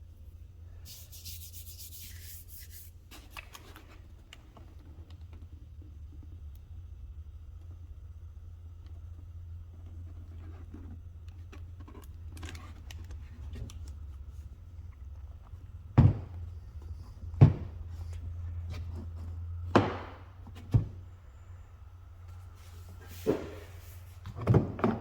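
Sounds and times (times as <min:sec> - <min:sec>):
sharp knocks: 0:19.7 - 0:21.0.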